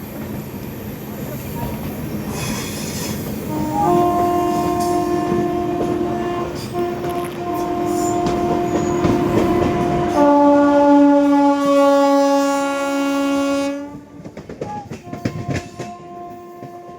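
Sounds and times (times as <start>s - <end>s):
train running on rails: 0.0s - 16.9s
train horn blast: 3.4s - 16.9s.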